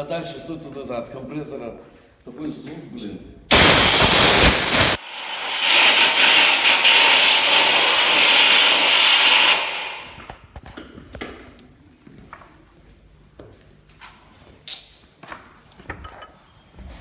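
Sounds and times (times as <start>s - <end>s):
compressed air blow gun hissing: 3.5s - 10.2s.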